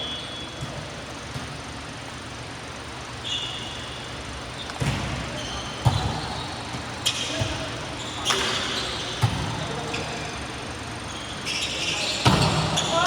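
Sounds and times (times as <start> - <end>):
shoe squeaks: 0.0 - 0.7, 3.2 - 13.0.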